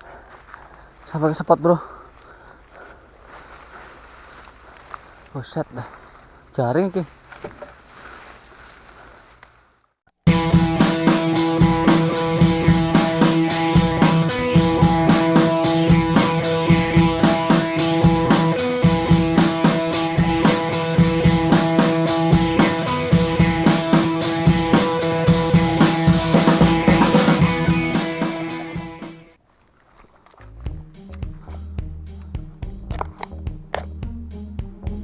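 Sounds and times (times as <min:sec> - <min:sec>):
background music with drums and guitar: 0:10.3 - 0:29.3, 0:30.6 - 0:35.0.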